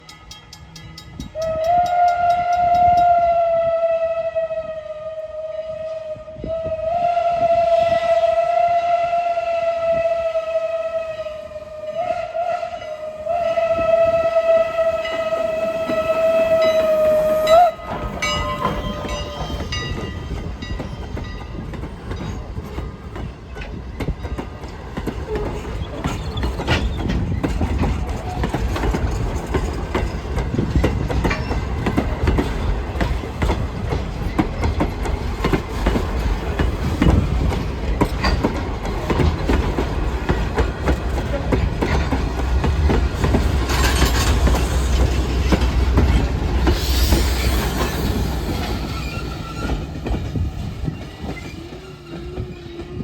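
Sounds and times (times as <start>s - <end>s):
train rumbling past: 0.0s - 53.0s
steam locomotive whistle: 1.0s - 20.6s, 43.6s - 53.0s
wheels clicking over rail joints: 15.0s - 53.0s.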